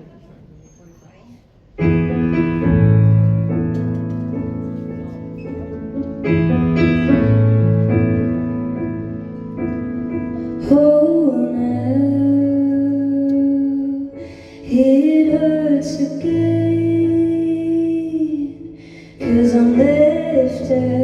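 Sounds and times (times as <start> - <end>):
piano playing slow chords: 1.8 - 21.0
woman singing: 10.6 - 21.0.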